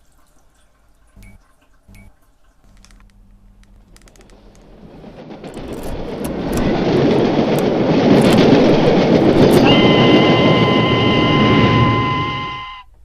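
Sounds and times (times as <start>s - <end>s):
loud rumbling roar: 4.3s - 12.6s
chord of high steady tones: 9.1s - 13.0s.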